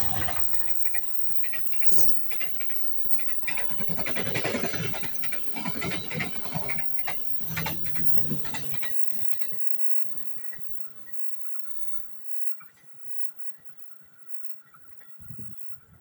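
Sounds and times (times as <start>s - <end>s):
train wheels clattering over rail joints: 0.0s - 9.7s.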